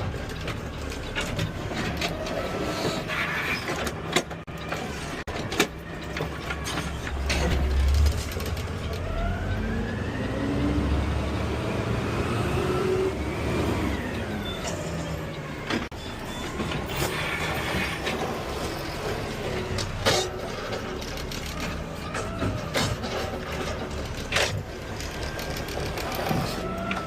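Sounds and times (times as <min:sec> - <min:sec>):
garbage truck engine rumble: 0:00.0 - 0:27.0.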